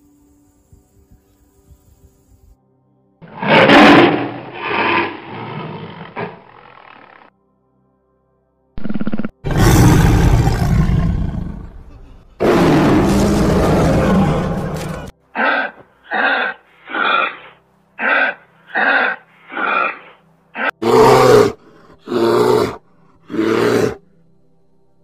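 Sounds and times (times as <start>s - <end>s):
lion roaring: 3.2s - 7.1s, 8.8s - 17.4s, 20.6s - 24.0s
bear growling: 3.2s - 7.2s, 8.8s - 24.0s
kangaroo grunting calls: 14.0s - 23.9s.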